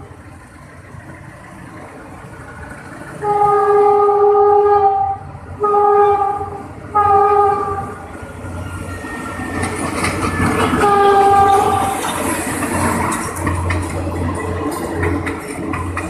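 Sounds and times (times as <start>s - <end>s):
wheels clicking over rail joints: 0.0s - 16.0s
locomotive horn blast: 3.2s - 8.0s, 10.7s - 12.0s.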